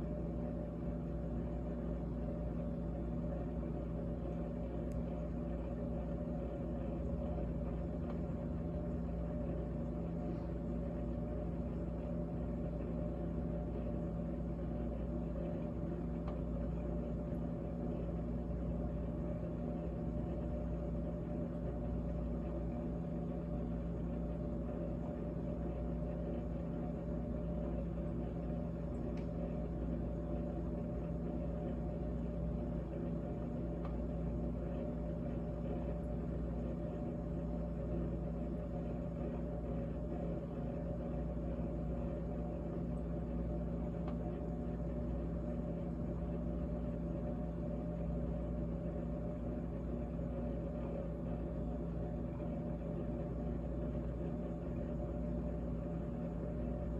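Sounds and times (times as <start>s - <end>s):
refrigerator hum: 0.0s - 56.9s.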